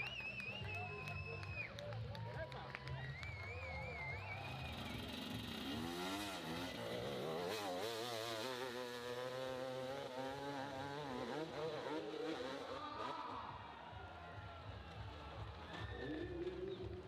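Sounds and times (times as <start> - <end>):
motorcycle engine revving: 4.2 - 13.5.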